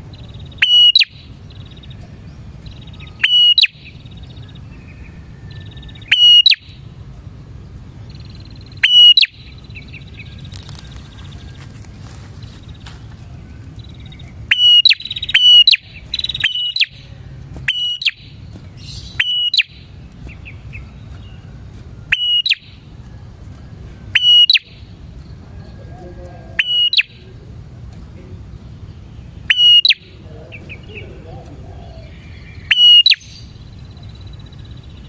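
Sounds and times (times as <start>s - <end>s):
steady low hum: 0.0s - 35.0s
bird calling sharp upward whistles: 0.5s - 1.3s, 3.0s - 3.9s, 5.3s - 6.8s, 8.7s - 9.6s, 14.5s - 19.9s, 22.1s - 22.8s, 24.1s - 24.9s, 26.6s - 27.2s, 29.5s - 30.2s, 32.1s - 33.6s.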